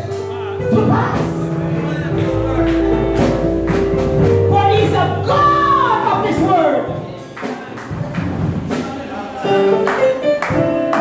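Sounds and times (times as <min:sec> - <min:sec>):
sustained keyboard chords: 0:00.0 - 0:11.0
person singing: 0:08.7 - 0:11.0.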